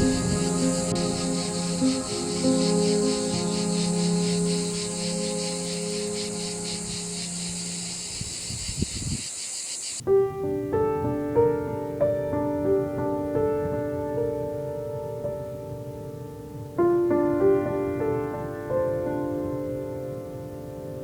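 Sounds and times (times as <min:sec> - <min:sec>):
soft background music: 0:00.0 - 0:08.4
slow piano music: 0:00.0 - 0:08.8, 0:10.0 - 0:21.0
cicadas singing: 0:00.0 - 0:10.0.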